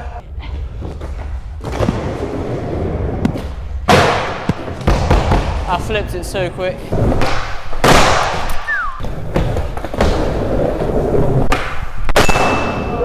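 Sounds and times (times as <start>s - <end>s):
skateboard slapping on floor: 3.1s - 5.6s
skateboard wheels rolling: 8.6s - 12.0s.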